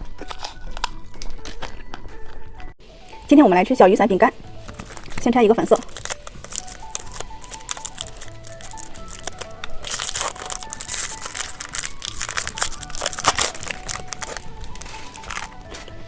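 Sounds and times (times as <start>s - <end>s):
light background music: 0.0s - 16.0s
plastic snack wrapper crinkling: 4.6s - 16.0s.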